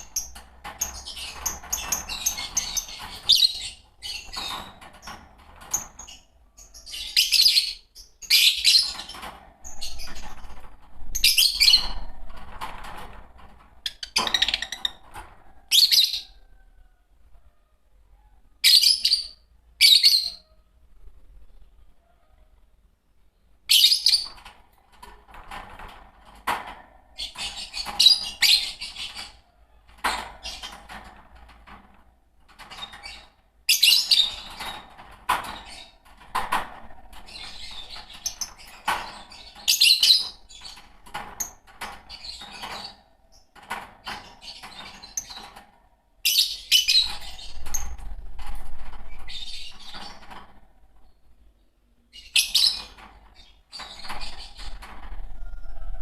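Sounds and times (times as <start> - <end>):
lovebirds chirping and chattering: 0.0 - 13.0, 13.7 - 31.7, 32.5 - 56.0.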